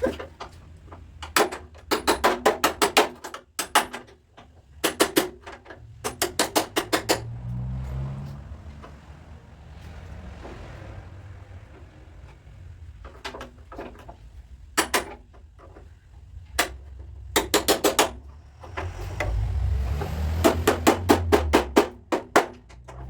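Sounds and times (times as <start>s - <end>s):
hammer tapping on sheet metal: 1.3s - 4.1s, 4.8s - 7.3s, 16.6s - 18.2s, 20.4s - 22.8s.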